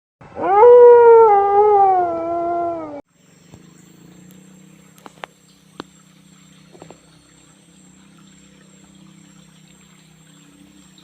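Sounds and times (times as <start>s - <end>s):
animal howl: 0.3s - 3.0s
faint steady hum: 0.4s - 11.0s.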